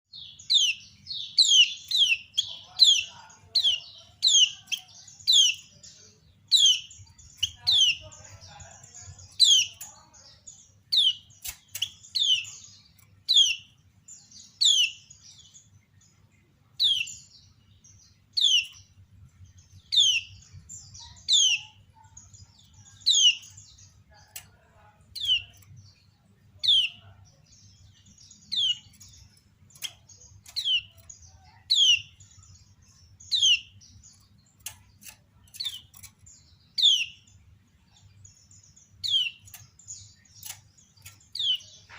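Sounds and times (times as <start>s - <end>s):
thin sharp ticks: 11.4s - 12.0s, 28.9s - 31.2s, 34.6s - 36.3s, 40.3s - 41.6s.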